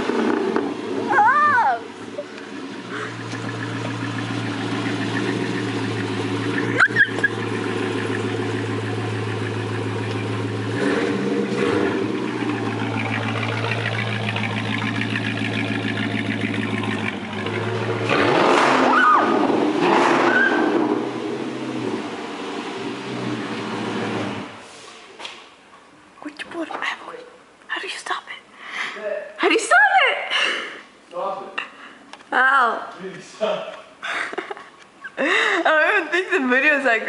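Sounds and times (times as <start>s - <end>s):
car engine idling and revving: 0.0s - 24.7s.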